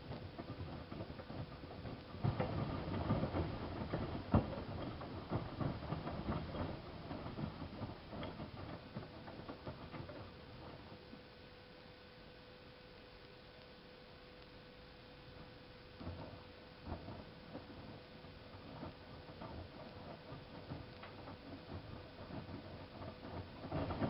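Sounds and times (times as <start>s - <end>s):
knocks and clatter: 0.0s - 11.2s, 16.0s - 24.0s
faint steady hum: 0.0s - 24.0s.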